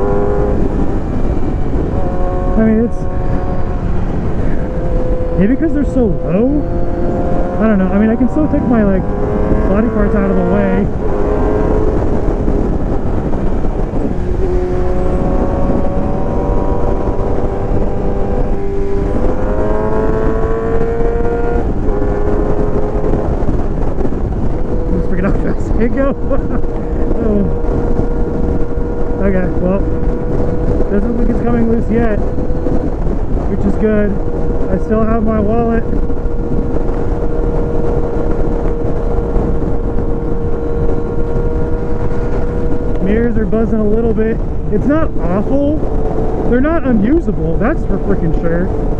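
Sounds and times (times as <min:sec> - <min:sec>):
motorcycle engine running: 0:00.0 - 0:48.9
wind noise on microphone: 0:00.0 - 0:48.9.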